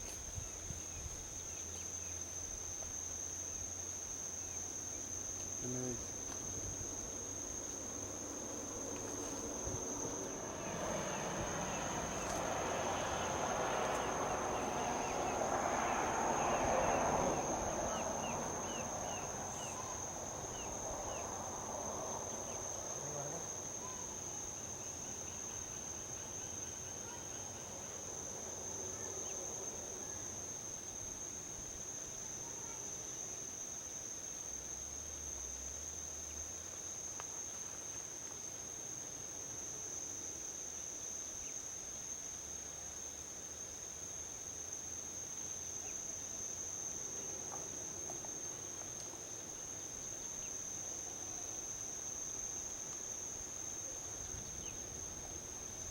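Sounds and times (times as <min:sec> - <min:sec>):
insects trilling: 0:00.0 - 0:55.9
vehicle passing on highway: 0:06.2 - 0:26.1.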